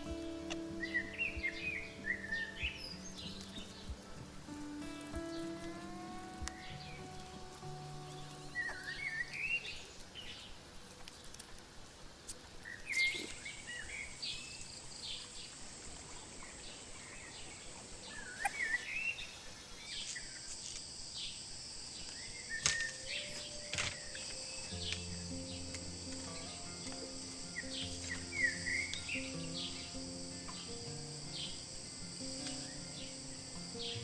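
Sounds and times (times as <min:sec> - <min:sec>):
high insect buzz: 0:00.0 - 0:13.4, 0:18.4 - 0:34.0
birds chirping: 0:00.0 - 0:14.0, 0:18.2 - 0:19.9.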